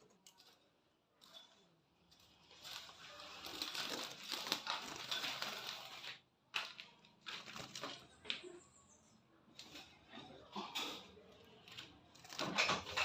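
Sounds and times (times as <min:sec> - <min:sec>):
rustling and crinkling: 0:01.2 - 0:08.5.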